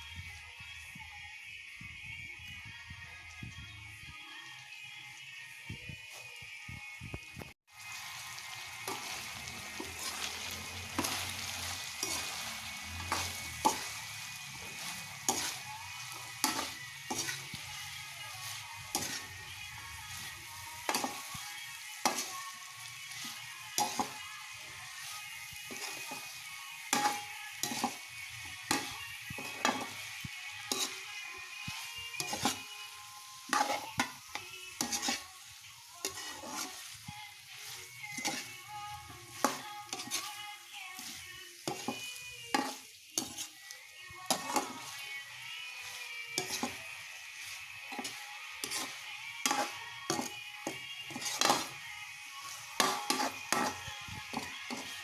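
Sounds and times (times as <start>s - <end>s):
food sizzling in a pan: 0.0s - 55.0s
utensil scraping a pan: 8.8s - 22.5s, 30.6s - 32.8s, 33.4s - 45.2s, 45.8s - 51.8s, 52.7s - 55.0s.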